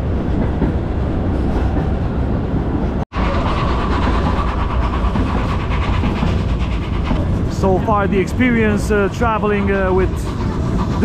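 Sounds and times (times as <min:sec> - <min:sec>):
train rumble: 0:00.0 - 0:11.0
wheels clattering on rails: 0:00.0 - 0:11.0.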